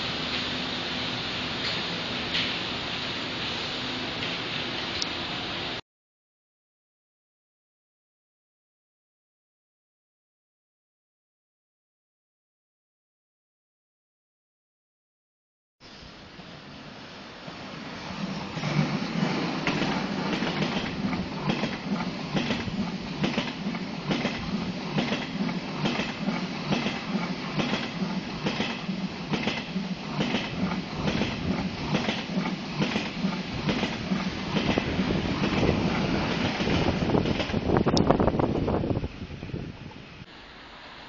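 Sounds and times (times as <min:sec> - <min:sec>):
high-speed train drone: 0:00.0 - 0:05.8, 0:15.8 - 0:41.0
train wheels clicking over rails: 0:17.4 - 0:38.7.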